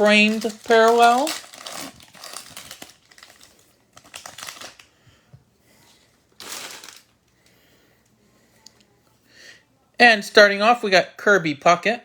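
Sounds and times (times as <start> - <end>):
trading cards rustling: 0.0 - 4.9
plastic wrapper crinkling: 0.0 - 5.0, 6.1 - 7.5.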